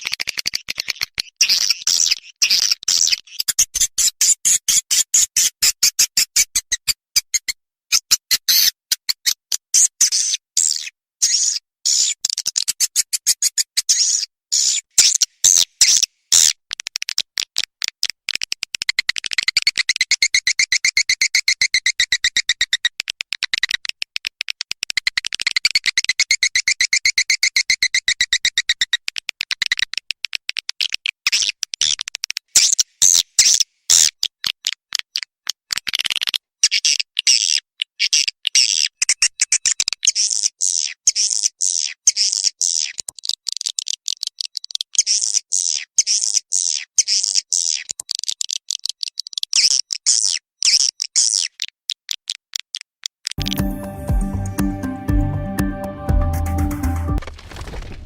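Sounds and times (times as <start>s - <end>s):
swiftlet chirps and clicks: 53.4s - 56.0s.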